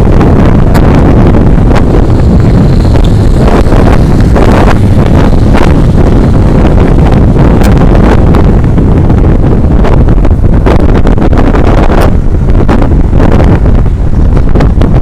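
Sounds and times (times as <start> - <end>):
scattered crackles: 0.0 - 8.8
truck noise: 0.0 - 14.6
wind buffeting microphone: 0.0 - 15.0.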